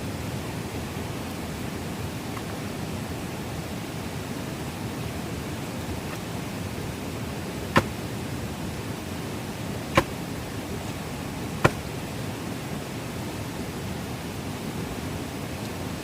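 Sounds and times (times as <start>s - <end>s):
sharp knocks: 7.7s - 8.0s, 9.9s - 10.2s, 11.6s - 11.9s.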